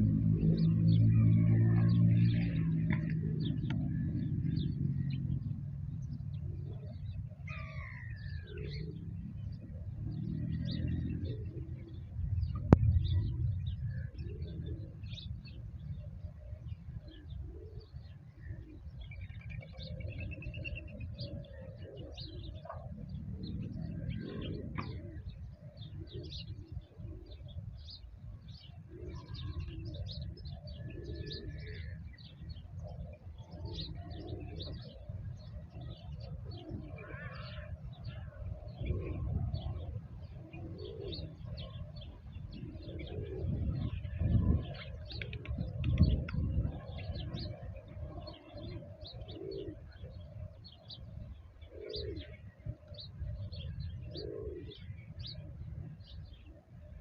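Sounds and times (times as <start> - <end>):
low rumble: 0.0 - 6.4, 12.0 - 14.4
doves cooing: 0.0 - 57.0
small birds chirping: 0.0 - 57.0.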